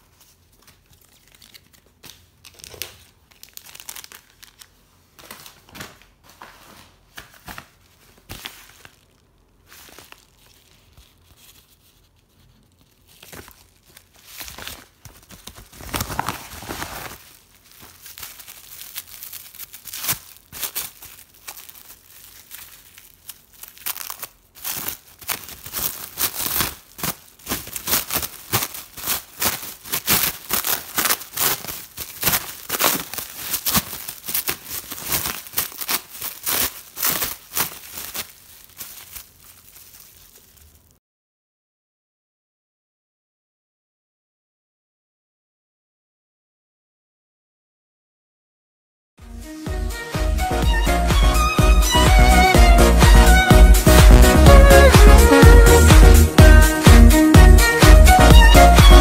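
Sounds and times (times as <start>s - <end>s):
plastic wrap crinkling: 0.0s - 41.0s.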